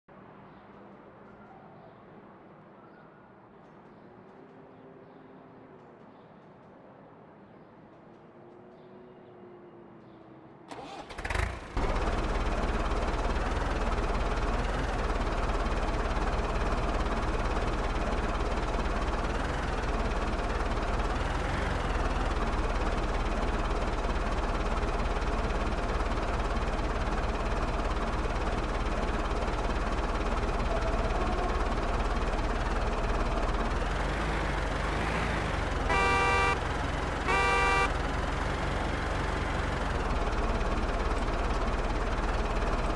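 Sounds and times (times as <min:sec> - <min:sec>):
diesel engine starter cranking: 0:10.7 - 0:12.8
tractor diesel engine running: 0:10.7 - 0:42.9
horn beeping: 0:35.8 - 0:38.2.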